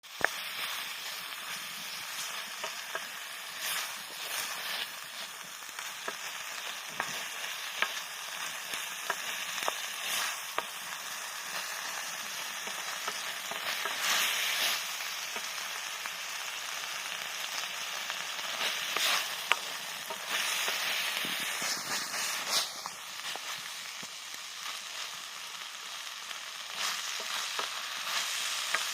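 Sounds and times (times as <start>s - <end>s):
food sizzling in a wok: 0.0s - 28.9s
stirring clicks and scrapes: 26.7s - 28.9s.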